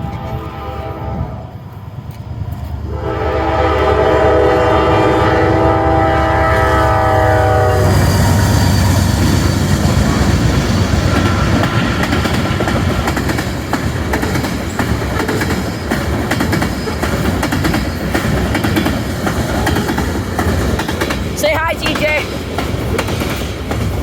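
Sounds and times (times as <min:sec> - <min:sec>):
train horn chord: 0:00.0 - 0:01.4, 0:02.9 - 0:08.9
train wheels clattering on rails: 0:07.4 - 0:24.0.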